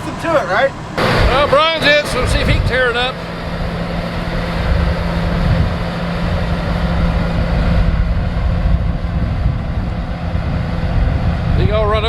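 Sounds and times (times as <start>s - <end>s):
bulldozer diesel engine rumbling: 0.0s - 12.0s.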